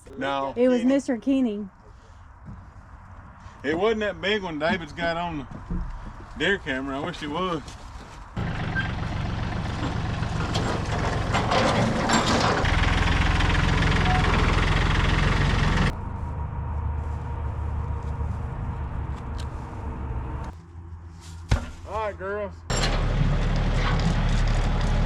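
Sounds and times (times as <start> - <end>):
vehicle engine running: 8.4 - 20.9.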